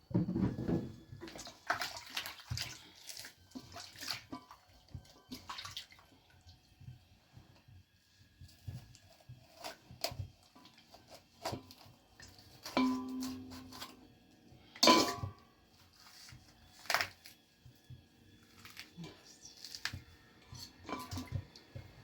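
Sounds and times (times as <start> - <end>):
metal pots and dishes clinking: 12.6 - 14.0, 14.7 - 15.5, 20.5 - 22.0.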